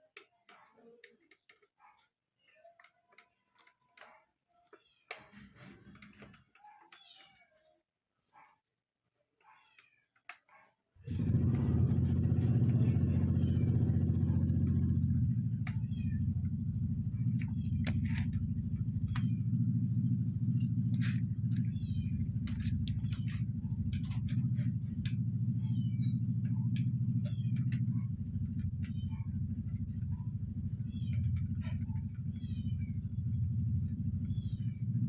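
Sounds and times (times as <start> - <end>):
electric fan motor humming: 11.1 - 35.0.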